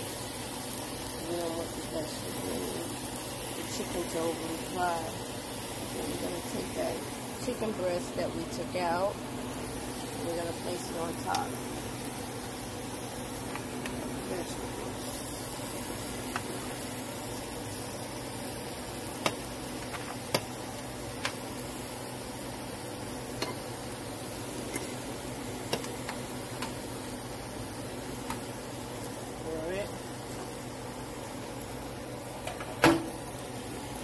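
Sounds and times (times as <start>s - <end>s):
vegetables and chicken sizzling in skillet: 0.0s - 34.0s.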